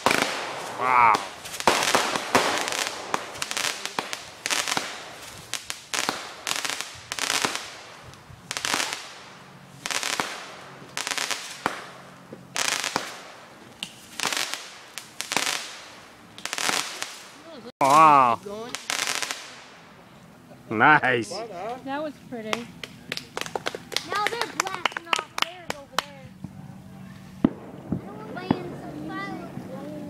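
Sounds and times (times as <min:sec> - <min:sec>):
fireworks bangs and crackle: 0:00.0 - 0:20.0, 0:27.2 - 0:30.0.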